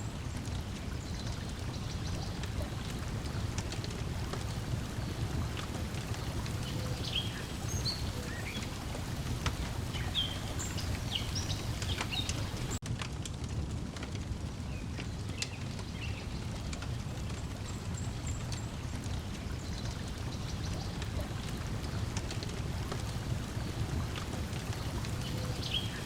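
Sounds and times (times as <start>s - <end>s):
water lapping: 0.0s - 12.8s, 16.4s - 26.0s
wood fire crackling: 0.0s - 26.0s
bird chirps: 25.2s - 26.0s.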